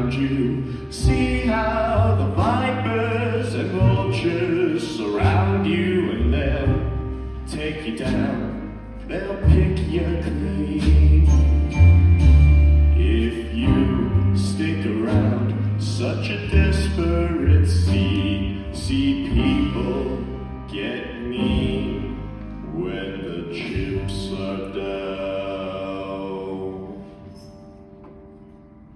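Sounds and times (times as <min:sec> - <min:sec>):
deep bass notes: 0:00.0 - 0:28.8
live band playing: 0:09.4 - 0:14.4.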